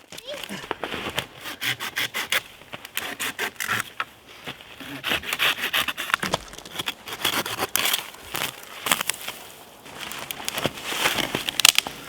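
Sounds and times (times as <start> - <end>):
wood rubbing scrapes: 0.8 - 11.5
wood cracking and snapping: 5.2 - 12.0.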